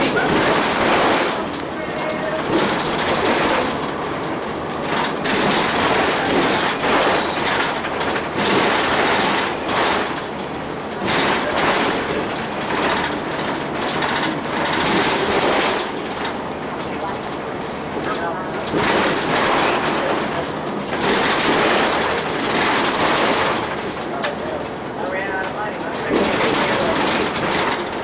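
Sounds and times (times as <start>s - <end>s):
bus rattling clatter: 0.0s - 28.0s
road noise: 0.0s - 28.0s.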